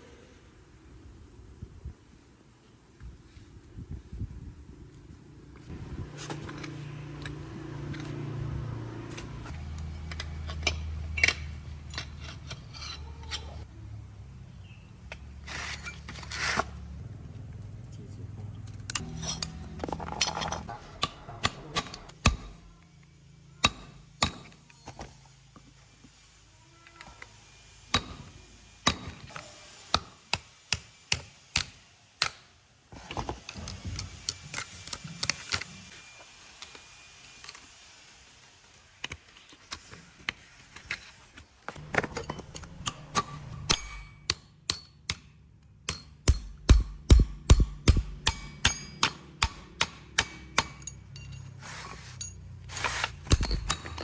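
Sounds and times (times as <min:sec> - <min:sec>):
hand tools clinking on metal: 0:41.8 - 0:47.2, 0:48.3 - 0:54.0.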